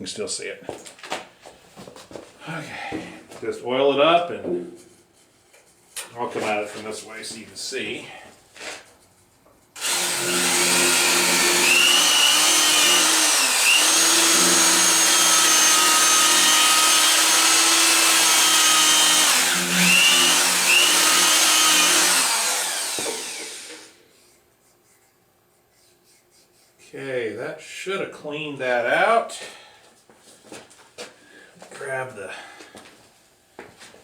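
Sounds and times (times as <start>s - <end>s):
electric drill spinning: 9.8s - 24.0s.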